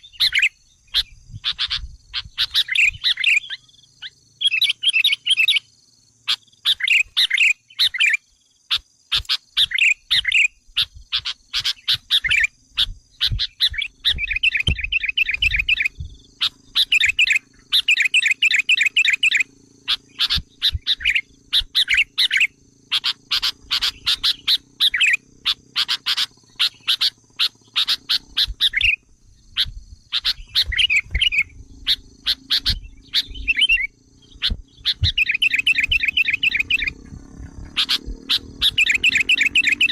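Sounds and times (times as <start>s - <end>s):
bird chattering calls: 0.0s - 39.9s.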